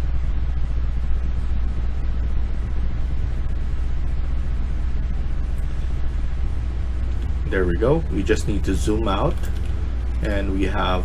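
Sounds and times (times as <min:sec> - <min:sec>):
low background hum and rumble: 0:00.0 - 0:11.0.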